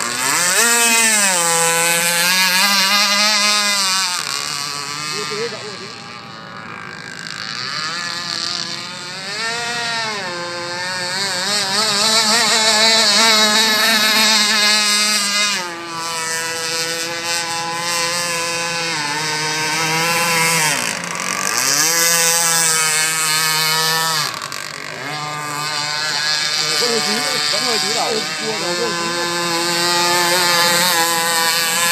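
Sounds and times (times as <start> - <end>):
model boat motor whining: 0.0 - 31.9.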